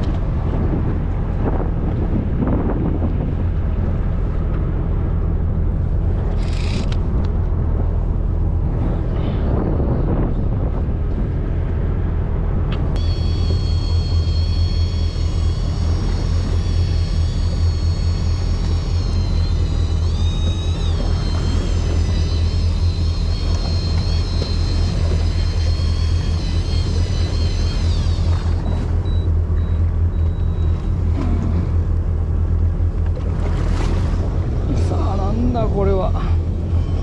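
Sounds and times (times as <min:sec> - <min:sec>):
boat engine rumbling: 0:00.0 - 0:37.0
thin high whine: 0:12.9 - 0:37.0.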